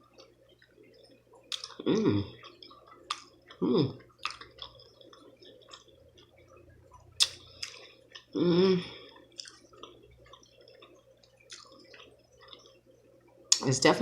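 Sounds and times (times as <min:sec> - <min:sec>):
wet chewing: 0:00.1 - 0:08.4, 0:09.0 - 0:13.6
person humming mm: 0:03.6 - 0:04.0, 0:08.4 - 0:08.9.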